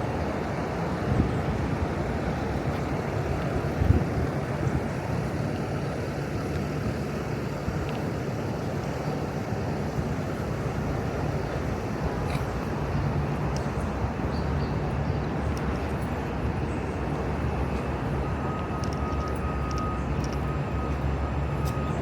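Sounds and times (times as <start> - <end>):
street traffic rumble: 0.0 - 22.0
faint clicks: 18.5 - 20.5.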